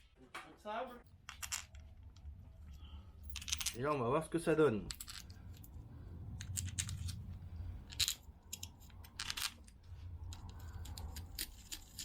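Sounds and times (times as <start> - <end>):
steady low hum: 4.4 - 12.0
scraping in screw threads: 6.4 - 12.0.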